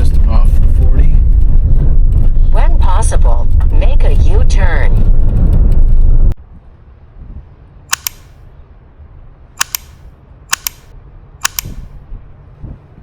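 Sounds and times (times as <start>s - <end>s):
sharp double clicks: 7.9s - 8.4s, 9.6s - 11.9s.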